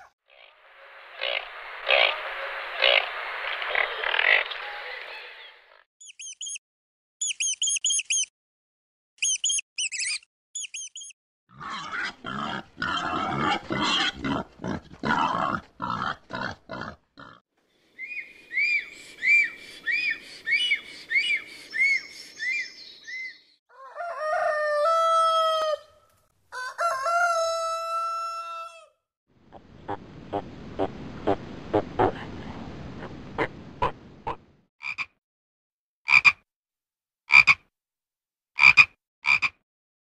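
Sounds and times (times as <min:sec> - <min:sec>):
high chirps: 0:06.0 - 0:06.6, 0:07.2 - 0:08.3, 0:09.2 - 0:11.2
rooster crowing: 0:23.7 - 0:29.0.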